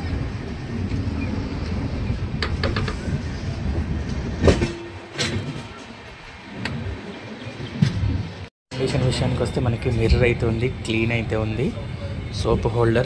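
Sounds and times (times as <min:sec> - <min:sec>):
train coaches rumbling on track: 0:00.0 - 0:13.0
wheel clicks over rail joints: 0:04.1 - 0:07.0
sharp metallic clank: 0:04.4 - 0:05.9.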